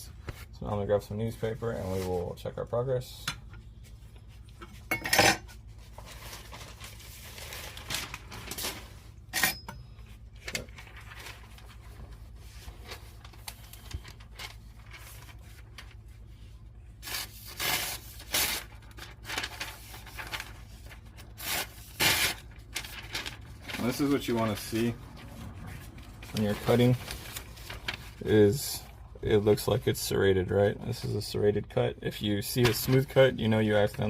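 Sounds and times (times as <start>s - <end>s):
newspaper rustling: 5.5s - 9.3s, 10.1s - 29.6s, 32.3s - 34.0s.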